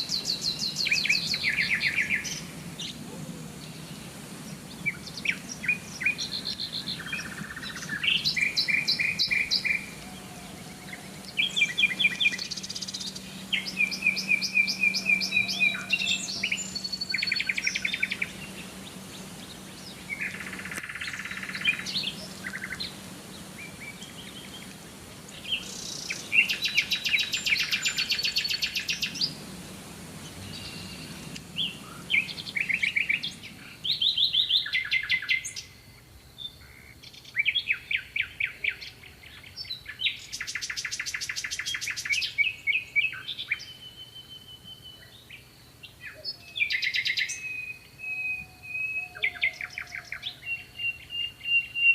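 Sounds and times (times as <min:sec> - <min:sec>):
faint low hum: 0:00.0 - 0:34.8
songbirds singing: 0:00.0 - 0:51.9.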